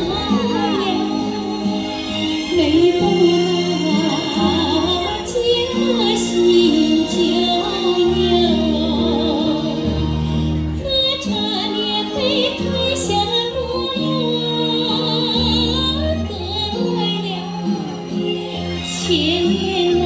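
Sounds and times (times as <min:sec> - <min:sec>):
instrumental accompaniment: 0:00.0 - 0:20.0
woman singing with vibrato: 0:00.0 - 0:20.0.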